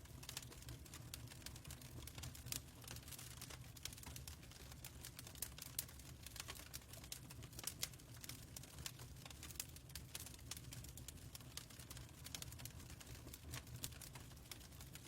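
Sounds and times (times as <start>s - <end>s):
fireplace fire crackling: 0.0s - 15.0s.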